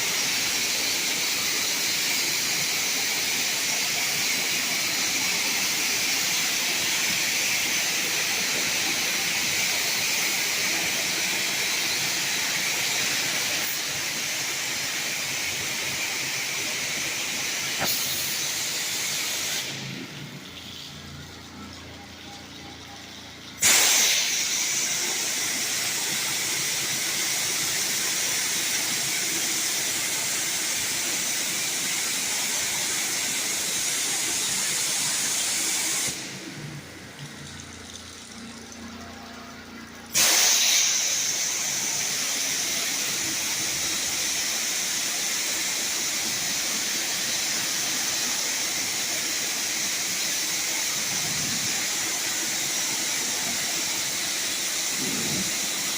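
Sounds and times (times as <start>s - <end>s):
spray wand hissing: 17.6s - 19.8s, 49.0s - 55.9s.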